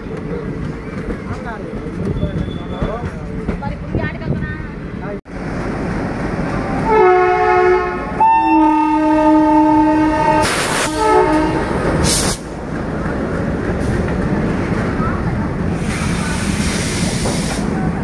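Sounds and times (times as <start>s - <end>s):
freight wagons rumbling and clattering: 0.0s - 5.2s
locomotive horn blasts: 6.8s - 11.8s.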